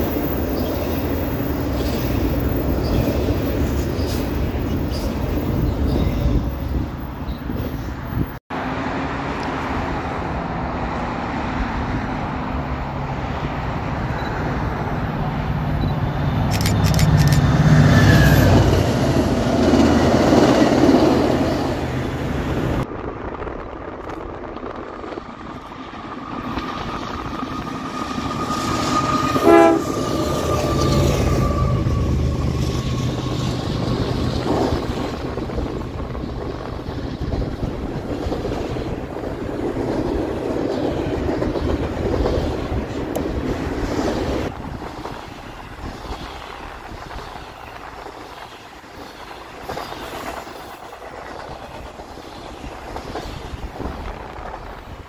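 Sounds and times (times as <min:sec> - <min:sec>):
freight train wheels on rails: 0:00.0 - 0:55.0
passenger train passing: 0:00.0 - 0:55.0
train horn toot: 0:28.9 - 0:32.8.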